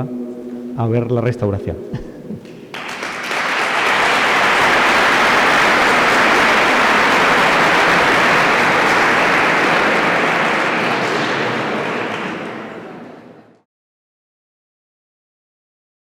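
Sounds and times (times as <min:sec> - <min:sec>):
audience applauding: 0:02.5 - 0:13.6.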